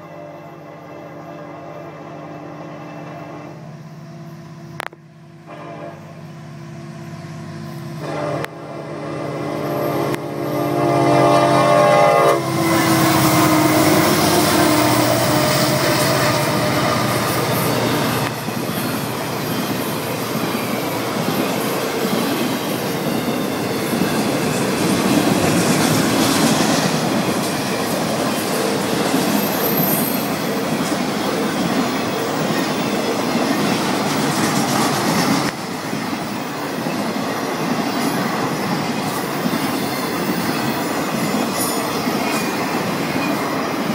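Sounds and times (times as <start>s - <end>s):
locomotive horn chord: 0.0s - 3.7s, 5.4s - 6.3s, 8.0s - 18.3s
freight train wheels rumbling: 0.0s - 43.9s.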